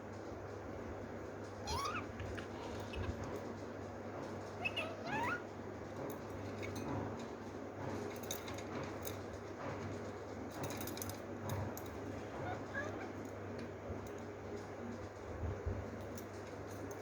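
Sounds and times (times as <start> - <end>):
lovebird calling: 1.6 - 3.2, 4.5 - 5.5, 12.4 - 13.2.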